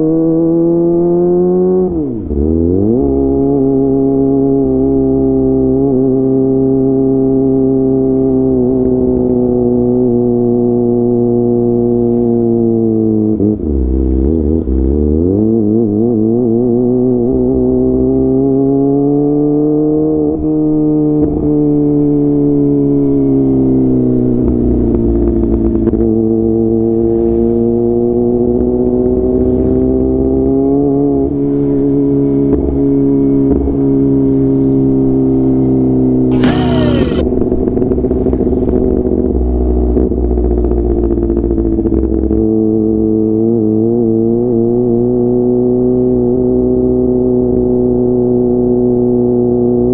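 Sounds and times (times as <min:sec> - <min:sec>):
motorcycle engine revving: 0:36.3 - 0:37.2.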